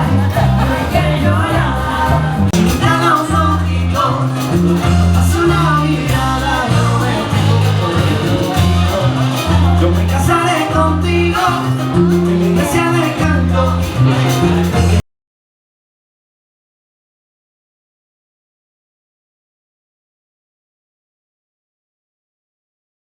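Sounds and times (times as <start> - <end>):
repeating bass line: 0.0 - 15.0
salsa music with singing: 0.0 - 15.0.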